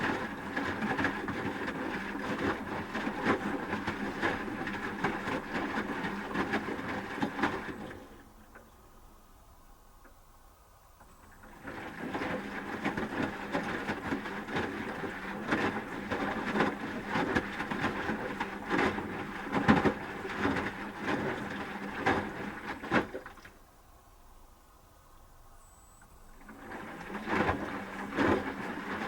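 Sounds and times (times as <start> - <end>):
laundry sloshing and knocking: 0.0 - 8.2, 11.4 - 23.5, 26.4 - 29.0.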